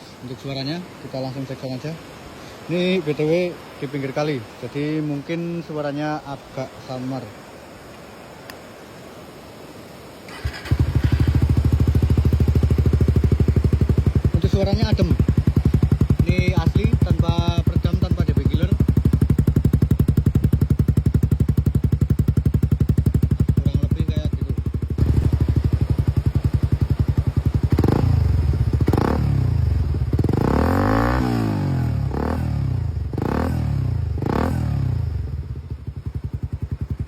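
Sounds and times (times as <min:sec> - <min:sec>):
motorcycle engine idling and revving: 0:10.3 - 0:37.0.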